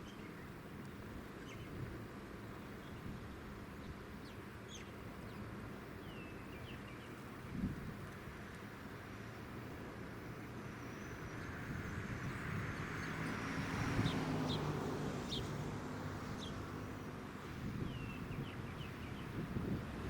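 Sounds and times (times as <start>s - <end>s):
small birds chirping: 0.0s - 0.6s, 1.4s - 7.4s, 8.8s - 19.9s
jet aircraft passing: 10.4s - 20.0s.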